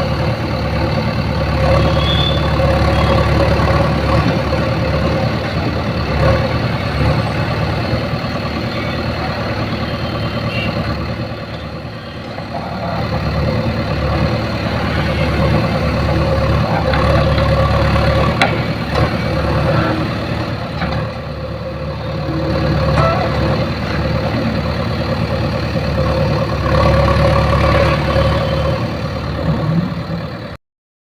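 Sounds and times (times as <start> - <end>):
diesel engine running: 0.0 - 30.6.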